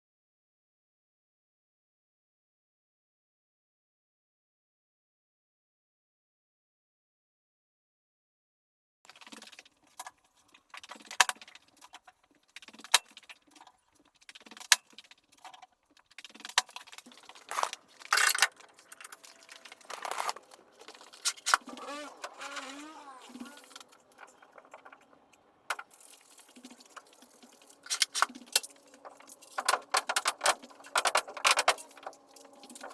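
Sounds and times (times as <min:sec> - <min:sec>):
scraping bursts: 0:17.0 - 0:32.9
wavering squeak: 0:21.3 - 0:25.4.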